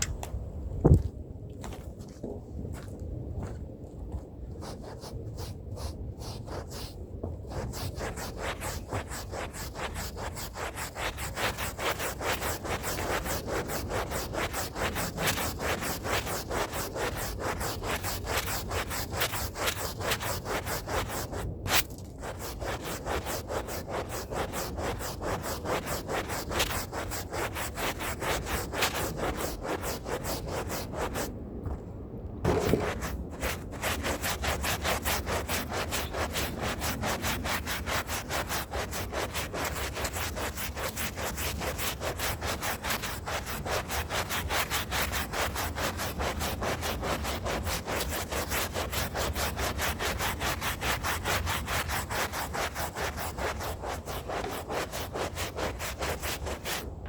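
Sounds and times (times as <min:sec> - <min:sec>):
hand brush scrubbing a rug: 0:04.6 - 0:31.3, 0:32.5 - 0:56.9.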